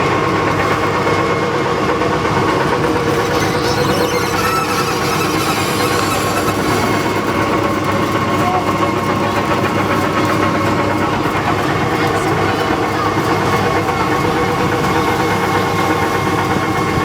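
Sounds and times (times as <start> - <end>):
tractor motor running: 2.2 - 8.1.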